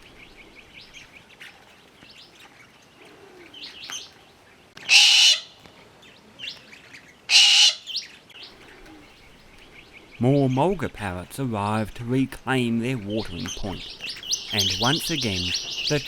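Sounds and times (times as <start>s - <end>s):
harsh bird screeches: 4.8s - 5.5s, 7.3s - 8.1s
faint bird chirps: 13.2s - 16.0s.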